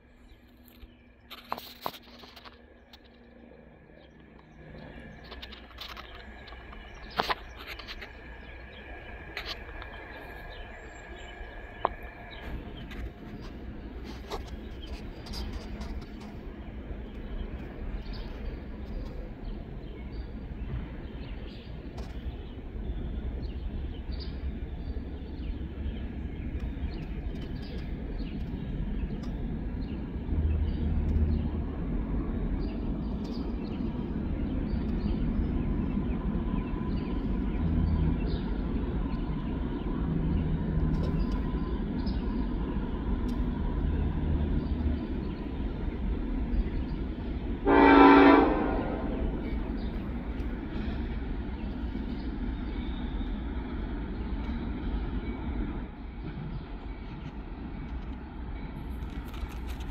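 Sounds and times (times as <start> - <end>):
diesel freight train rumble: 0.0 - 59.9
birds chirping: 0.2 - 57.9.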